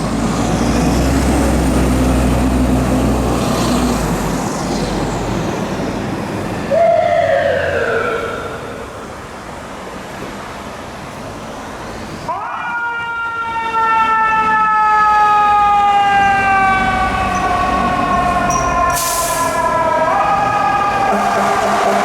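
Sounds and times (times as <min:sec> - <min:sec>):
street traffic noise: 0:00.0 - 0:22.0
fire truck siren: 0:05.9 - 0:09.5, 0:12.3 - 0:22.0.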